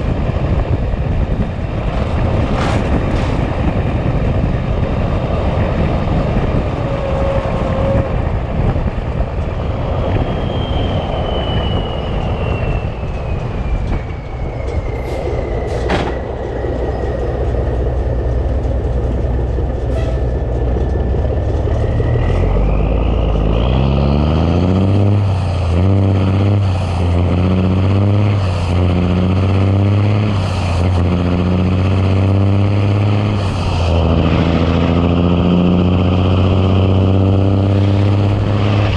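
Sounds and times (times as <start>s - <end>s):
diesel truck engine: 0.0s - 38.9s
road rumble: 0.0s - 38.9s
high whistle falling in pitch: 10.2s - 15.8s.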